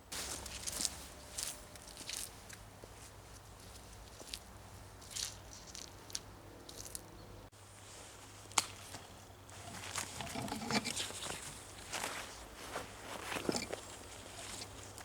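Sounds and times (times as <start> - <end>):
footsteps crunching in snow: 0.0 - 7.0, 10.9 - 15.0.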